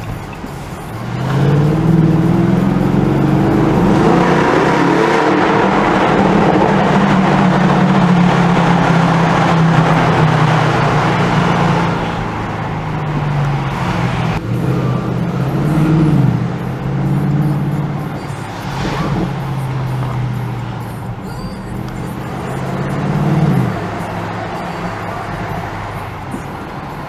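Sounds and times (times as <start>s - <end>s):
car engine deep drone: 0.0s - 27.0s.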